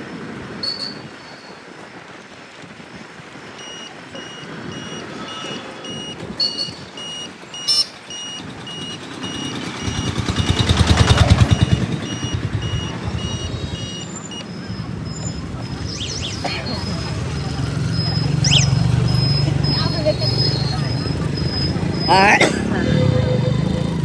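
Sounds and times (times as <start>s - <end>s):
reversing alarm beeping: 3.6s - 22.3s
heavy vehicle engine rumble: 3.9s - 24.0s.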